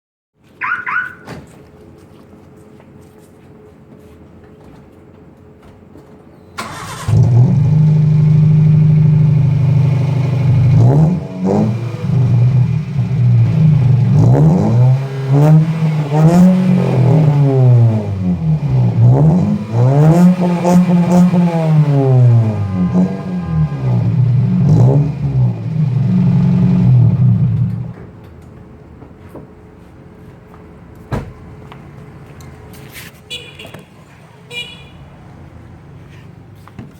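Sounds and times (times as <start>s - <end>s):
car engine idling and revving: 6.6s - 28.3s.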